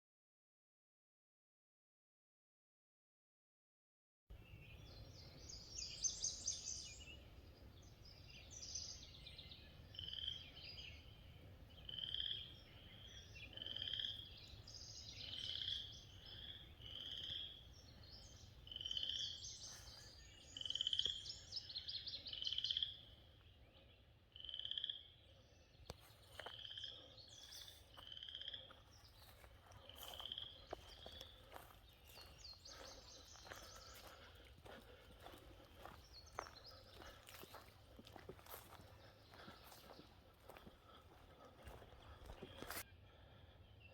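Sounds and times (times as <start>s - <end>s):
birds trilling: 7.8s - 43.9s
frogs peeping: 13.4s - 14.4s, 15.2s - 17.7s, 18.6s - 19.8s, 24.3s - 25.2s, 26.0s - 42.8s.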